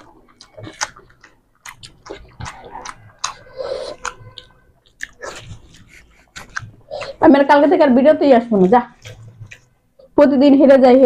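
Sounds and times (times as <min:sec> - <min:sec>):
chewing and mouth smacks: 0:00.0 - 0:07.2, 0:08.6 - 0:09.8.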